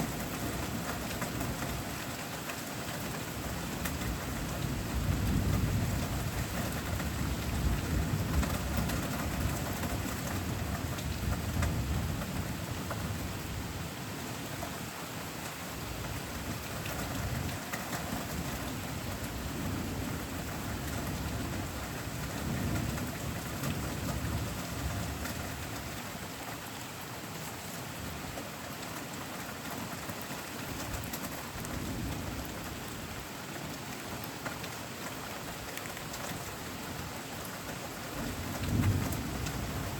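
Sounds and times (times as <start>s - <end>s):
steady rain falling: 0.0s - 39.9s
thunder rumbling: 38.2s - 39.9s.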